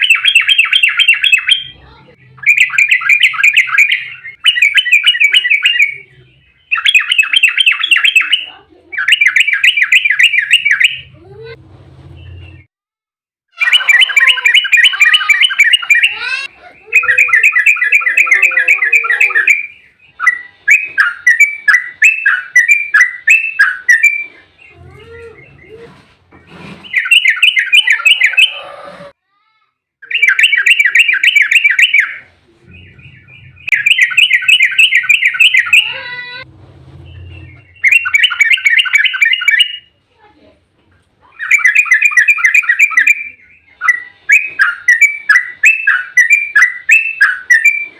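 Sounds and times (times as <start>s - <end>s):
bird chattering song: 0.0s - 11.2s, 13.6s - 26.0s, 26.8s - 28.7s, 30.0s - 36.4s, 37.0s - 40.0s, 41.2s - 47.9s.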